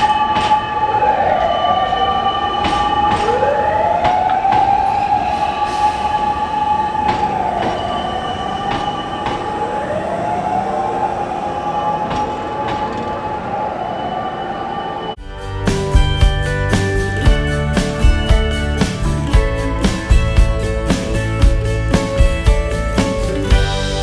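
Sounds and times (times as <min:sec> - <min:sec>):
electric train running slowly: 0:00.0 - 0:24.0
high-pitched wheel squeal: 0:05.0 - 0:09.7.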